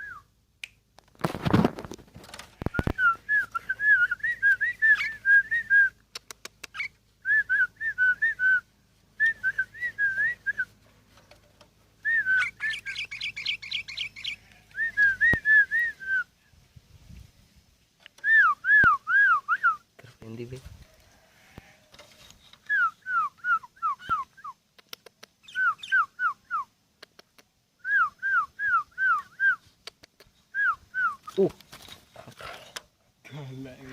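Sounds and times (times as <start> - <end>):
bird singing whistled notes: 2.9 - 6.0, 6.7 - 10.7, 12.0 - 16.3, 18.2 - 19.8, 22.6 - 24.6, 25.4 - 26.7.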